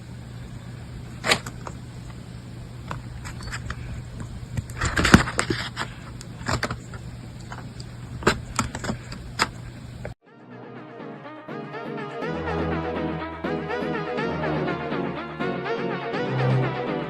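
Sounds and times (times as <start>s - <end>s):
steady low hum: 0.0s - 10.2s
electronic music: 10.3s - 17.0s.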